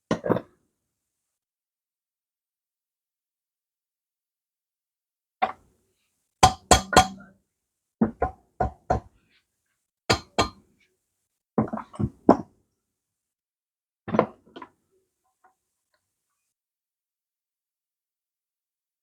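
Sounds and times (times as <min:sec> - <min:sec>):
tool striking metal: 0:06.4 - 0:07.3, 0:10.1 - 0:10.6.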